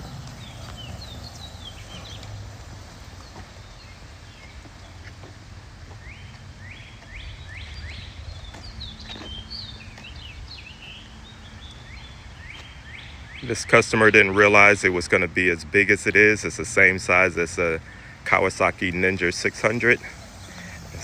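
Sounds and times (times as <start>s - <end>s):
low outdoor rumble: 0.0s - 6.5s, 13.4s - 21.0s
songbirds chirping: 0.0s - 21.0s.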